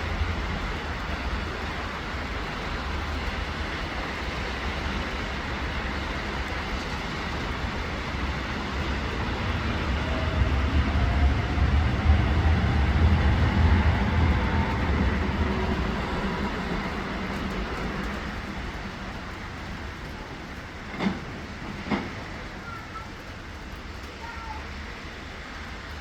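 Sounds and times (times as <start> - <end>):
steady rain hiss: 0.0 - 26.0
heavy vehicle passing: 7.8 - 19.3.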